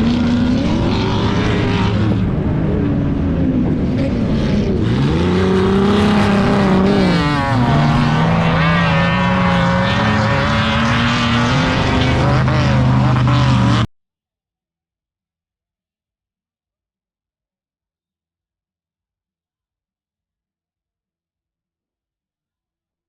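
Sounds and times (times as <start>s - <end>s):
car engine revving: 0.0s - 13.9s.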